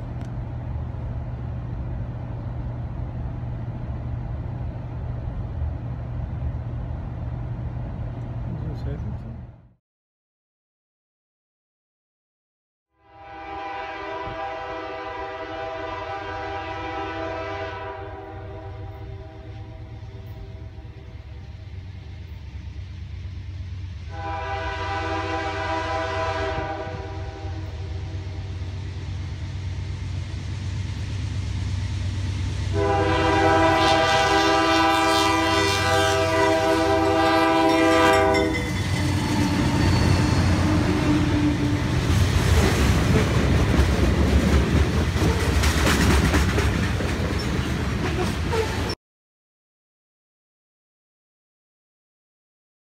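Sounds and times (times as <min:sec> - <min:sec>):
diesel locomotive rumble: 0:00.0 - 0:09.8, 0:13.2 - 0:49.0
train air horn: 0:13.0 - 0:21.1, 0:24.1 - 0:28.5, 0:32.7 - 0:41.8.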